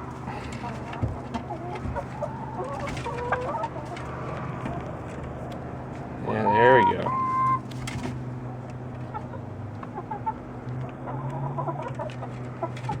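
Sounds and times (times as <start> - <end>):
hens clucking and chirping: 0.0 - 13.0.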